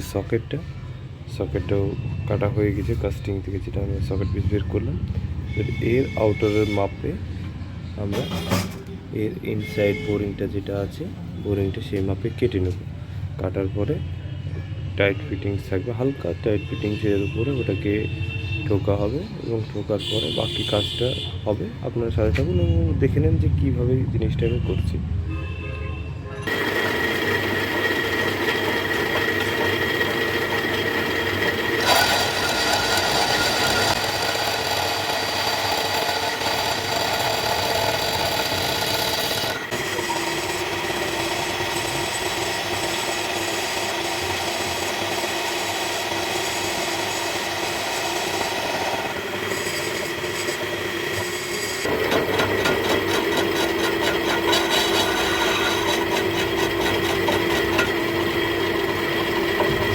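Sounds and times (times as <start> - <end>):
lathe cutting tool screeching on metal: 5.5 - 7.2, 15.6 - 19.2, 26.4 - 59.9.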